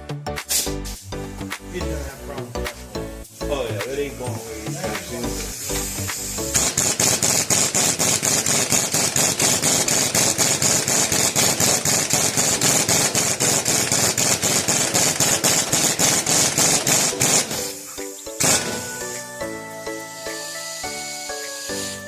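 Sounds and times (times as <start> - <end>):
rapid metal hammering: 6.0 - 17.8.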